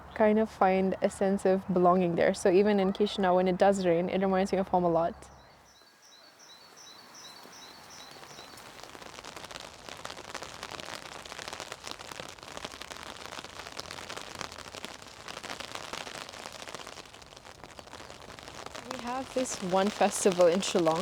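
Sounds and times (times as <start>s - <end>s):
rain pattering: 0.0s - 21.0s
bird chirping: 3.3s - 9.0s.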